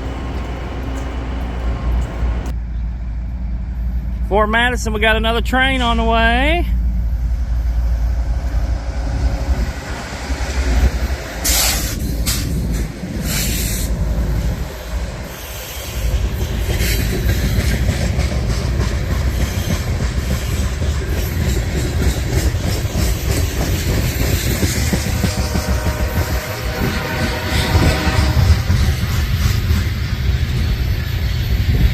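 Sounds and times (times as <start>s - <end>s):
wheels clattering over rail joints: 0.0s - 2.5s, 11.0s - 26.3s
freight train rumble: 0.0s - 31.9s.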